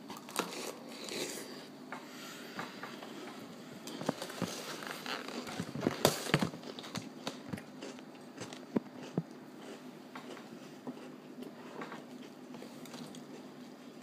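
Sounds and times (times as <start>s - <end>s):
chewing crunchy cereal: 0.0s - 1.7s, 3.2s - 14.0s.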